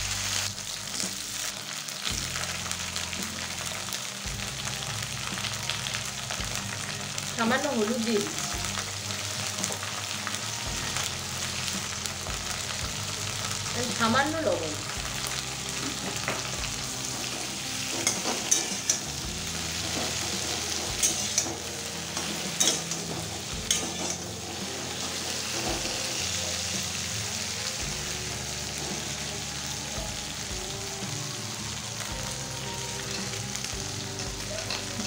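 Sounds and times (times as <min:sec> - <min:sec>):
food sizzling in oil: 0:00.0 - 0:35.0
spatula scraping a metal pan: 0:17.2 - 0:19.1, 0:19.7 - 0:26.3.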